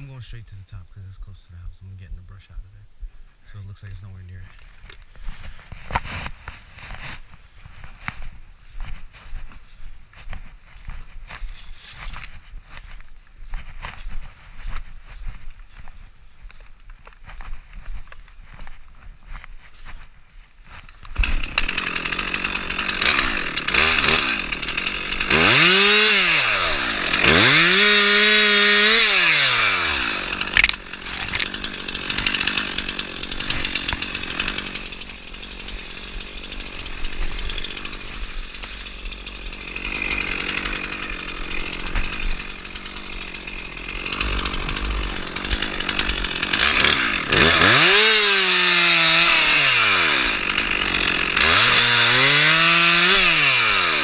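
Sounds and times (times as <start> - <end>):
chainsaw revving: 21.1 - 54.0.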